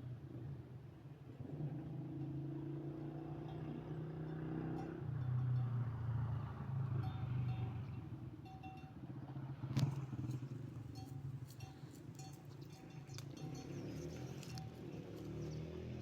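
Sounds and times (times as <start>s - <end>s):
motor engine droning: 9.4s - 16.0s.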